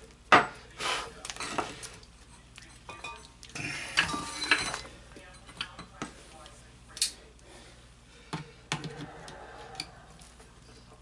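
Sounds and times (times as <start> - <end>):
metal tools clinking and scraping: 1.3 - 3.3, 3.9 - 6.0.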